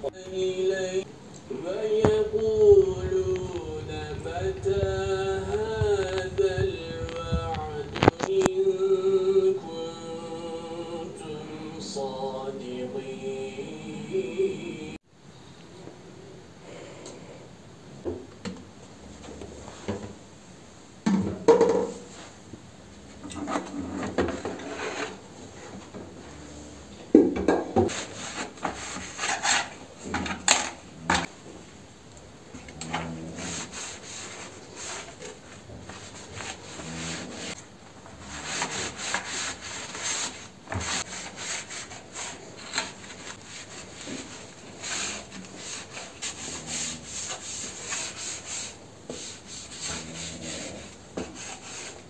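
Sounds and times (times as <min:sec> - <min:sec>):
objects rubbing and scraping: 0:00.0 - 0:08.8, 0:19.0 - 0:20.2, 0:21.7 - 0:31.4, 0:32.6 - 0:52.0
person reciting melodically: 0:00.0 - 0:15.0.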